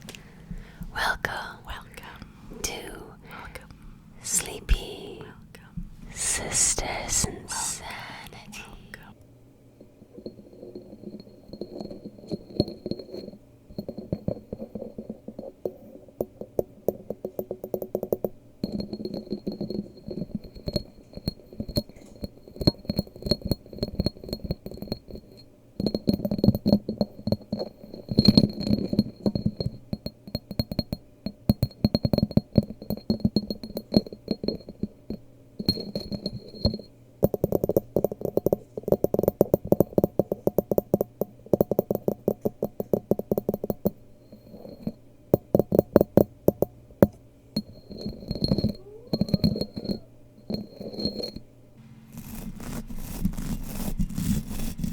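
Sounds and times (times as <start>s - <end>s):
rapid tapping on hard objects: 11.5s - 44.0s, 44.7s - 51.4s.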